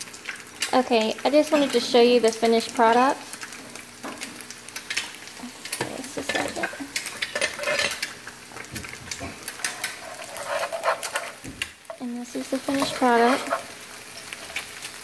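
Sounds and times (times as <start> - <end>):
potatoes sizzling in a frying pan: 0.0 - 15.0
spoon scraping a pan: 5.7 - 15.0.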